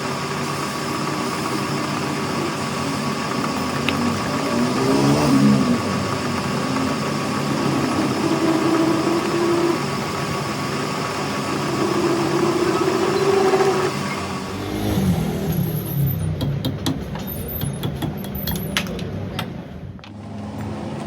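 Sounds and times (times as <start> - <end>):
motor humming: 5.6 - 15.9.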